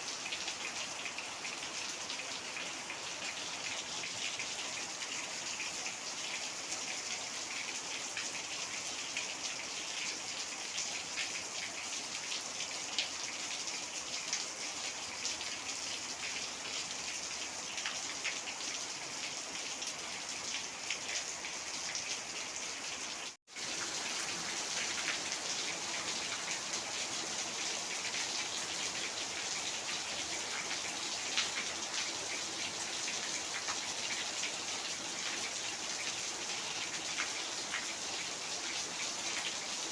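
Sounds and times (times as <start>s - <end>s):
heavy rain falling: 23.5s - 39.9s.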